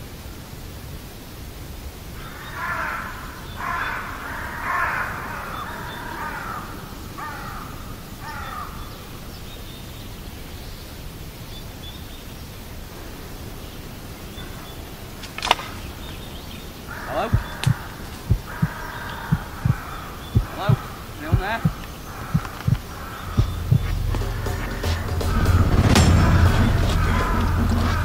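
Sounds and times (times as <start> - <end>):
outdoor background hiss: 0.0 - 28.0
harsh cawing bird calls: 2.1 - 10.8, 13.0 - 28.0
sharp click: 15.2 - 15.8.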